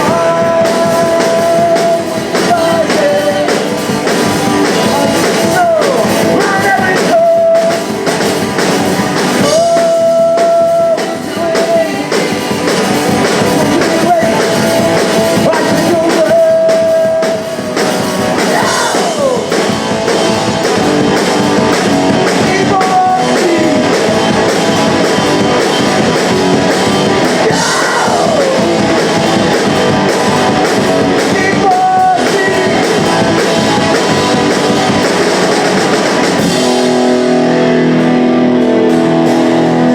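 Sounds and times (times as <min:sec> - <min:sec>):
person singing and yelling: 0:00.0 - 0:03.8, 0:04.6 - 0:08.0, 0:09.4 - 0:12.6, 0:13.4 - 0:17.6, 0:18.3 - 0:19.6, 0:22.2 - 0:24.3, 0:27.2 - 0:29.8, 0:31.1 - 0:34.6
drums: 0:00.0 - 0:39.9
electric guitar: 0:00.0 - 0:39.9.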